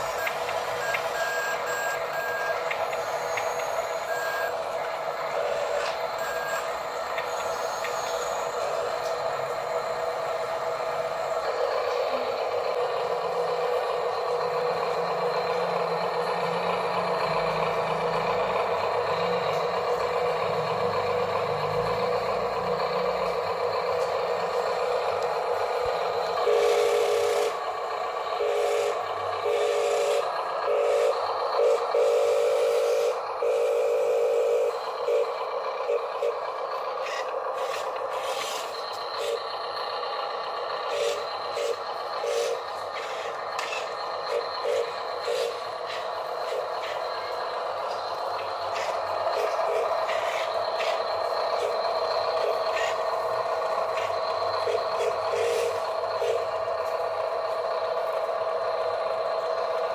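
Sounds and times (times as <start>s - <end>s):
motor whine in short bursts: 0.0s - 20.7s
toy truck electric motors whining: 0.0s - 59.9s.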